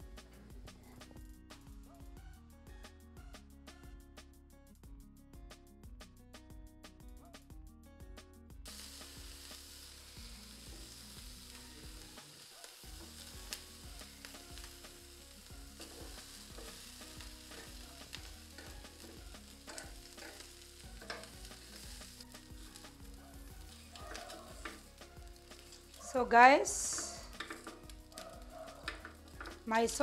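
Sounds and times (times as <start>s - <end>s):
meat sizzling in oil: 8.7s - 30.0s.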